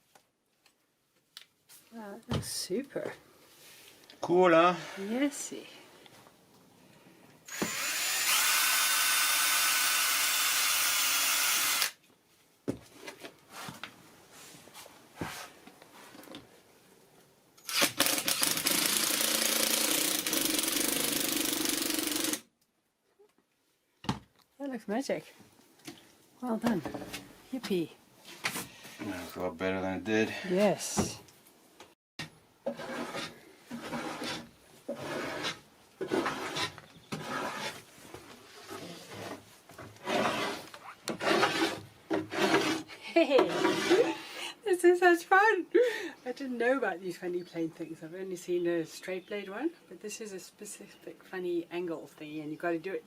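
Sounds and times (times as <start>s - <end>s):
power tool running: 7.5s - 12.0s, 17.6s - 22.4s
hand plane shaving wood: 32.7s - 37.9s, 40.0s - 44.2s.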